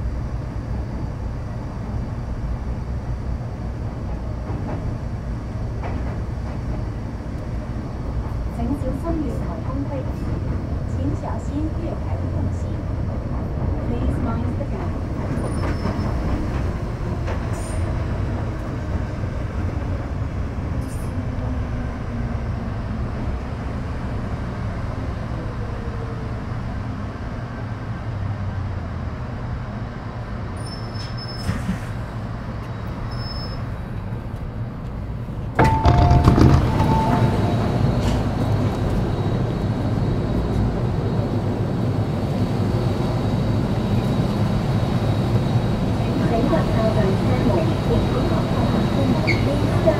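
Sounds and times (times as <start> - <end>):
train wheels rumbling on rail: 0.0 - 49.9
short tone: 35.6 - 37.7.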